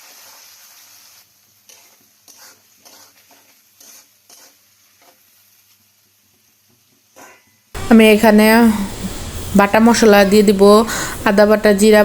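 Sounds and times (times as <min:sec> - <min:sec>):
spatula scraping a pan: 0:00.0 - 0:05.6
onions sizzling in hot oil: 0:00.0 - 0:12.0.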